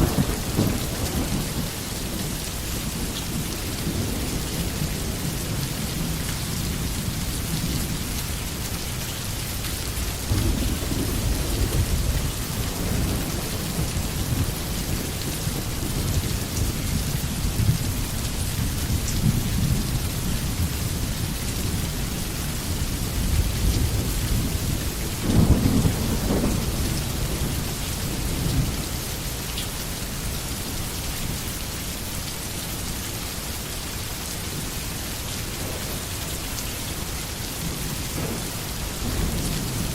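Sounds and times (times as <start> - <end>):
rolling thunder: 0.0 - 8.2, 9.9 - 29.3, 37.6 - 39.9
steady rainfall: 0.0 - 39.9.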